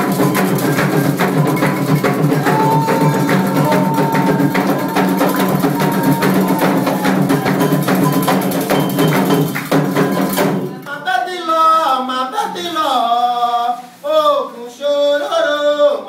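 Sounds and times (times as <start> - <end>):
lone voice singing: 0.0 - 8.7, 9.9 - 16.0
drums playing fast rhythm: 0.0 - 10.8
wood-block-like percussion: 0.0 - 10.8.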